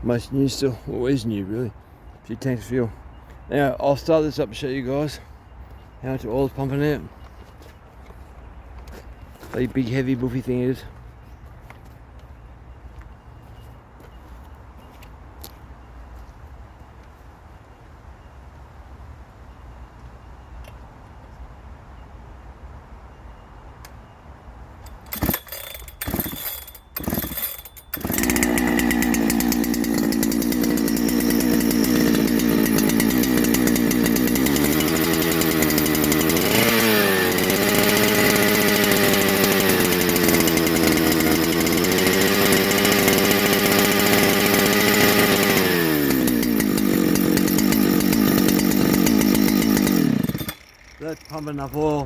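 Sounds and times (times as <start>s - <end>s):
chainsaw pull-starting: 24.8s - 52.0s
two-stroke chainsaw running: 24.9s - 52.0s.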